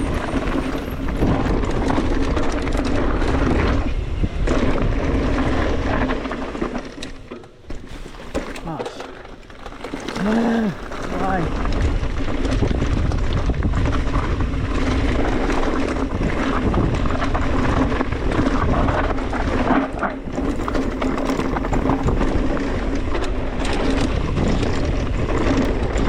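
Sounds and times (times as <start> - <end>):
wind buffeting microphone: 0.0 - 6.7, 10.0 - 26.0
bike rattling and knocking: 0.0 - 26.0
bike tyres on dirt trail: 0.0 - 26.0.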